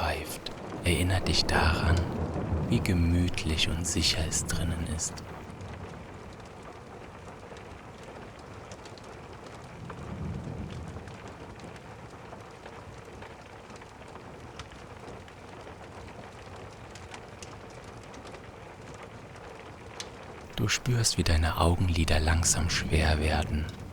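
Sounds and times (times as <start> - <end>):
distant thunder rumble: 0.0 - 5.4
faint crackles: 0.0 - 5.4, 20.5 - 23.9
steady rain falling: 0.0 - 23.9.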